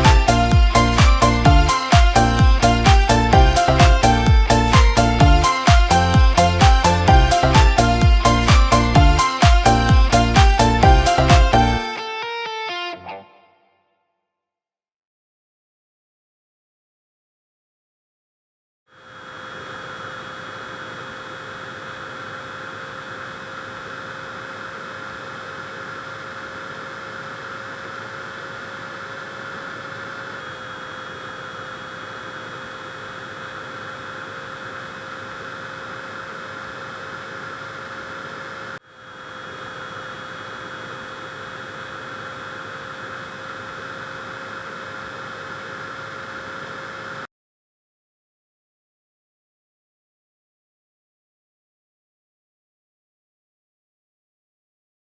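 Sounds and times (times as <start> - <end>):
small motor hum: 0.0 - 12.3, 18.9 - 47.3
fan whirring air: 0.0 - 12.6, 19.1 - 47.3.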